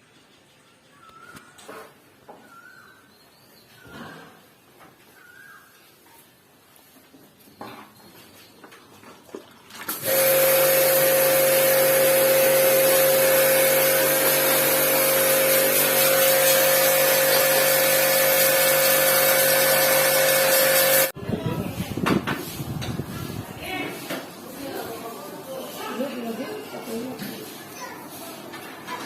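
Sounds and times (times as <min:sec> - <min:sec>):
water spray hiss: 0:09.9 - 0:21.1
pressure washer whine: 0:09.9 - 0:21.2.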